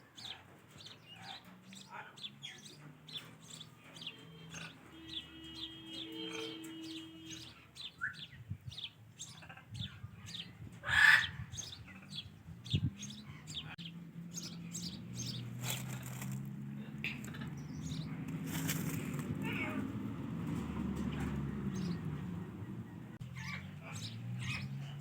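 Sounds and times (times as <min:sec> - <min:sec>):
parakeet harsh squawk: 0:10.8 - 0:11.4.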